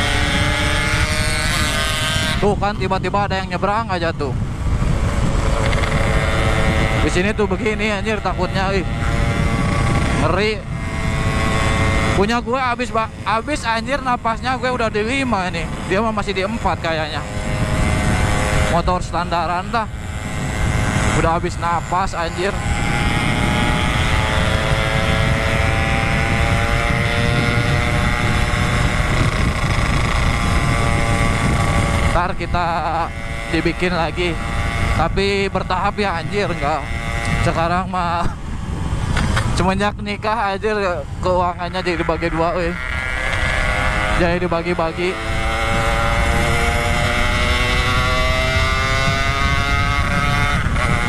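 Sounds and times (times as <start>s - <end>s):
wind rumble on microphone: 0.0s - 51.0s
motorcycle engine running flat out: 4.7s - 12.4s, 17.0s - 38.4s, 40.8s - 51.0s.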